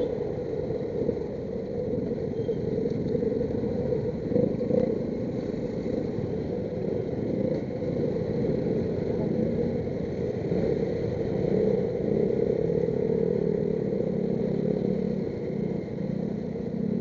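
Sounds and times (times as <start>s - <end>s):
road rumble: 0.0s - 17.0s.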